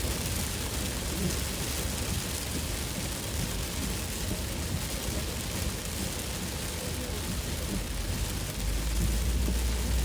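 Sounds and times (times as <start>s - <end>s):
heavy rain on a car: 0.0s - 10.0s
steady low rumble: 2.2s - 10.0s.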